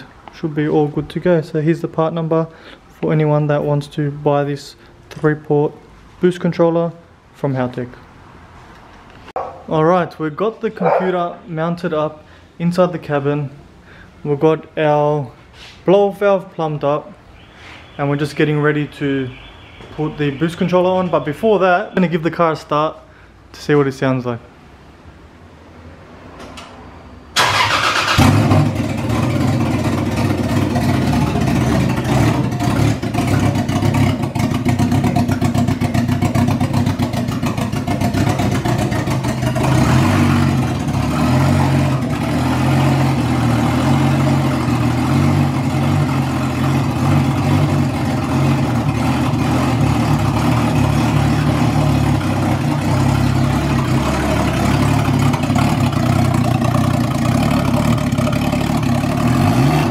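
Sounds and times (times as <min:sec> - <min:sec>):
car engine cranking and starting: 0:27.3 - 0:59.9
car engine running: 0:28.2 - 0:59.9.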